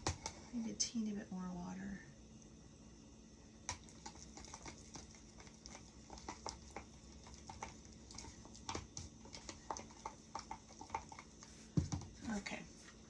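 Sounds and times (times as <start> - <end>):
spoon stirring thick paste: 0.0 - 0.6, 3.7 - 12.6.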